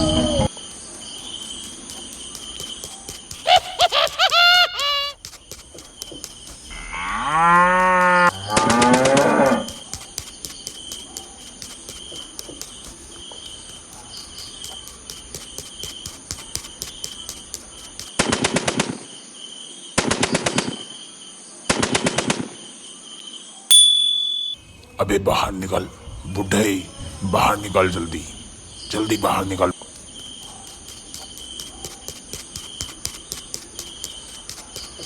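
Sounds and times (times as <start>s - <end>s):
rapid rattling clicks: 0.8s - 7.0s, 7.6s - 18.1s
cow mooing: 6.8s - 9.7s.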